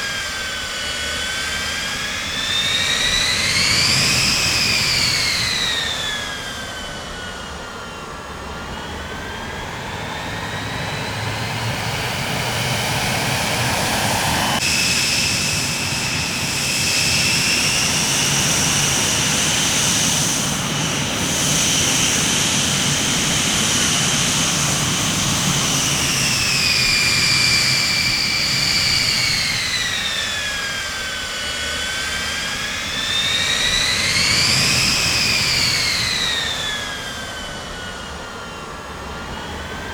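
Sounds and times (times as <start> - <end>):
high turbine whine: 0.0 - 39.9
jet engines running: 0.0 - 39.9.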